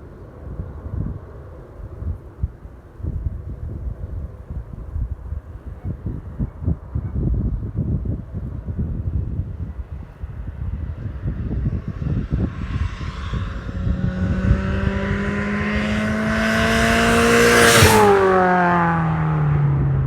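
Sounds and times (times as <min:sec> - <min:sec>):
car driving past: 0:11.0 - 0:20.0.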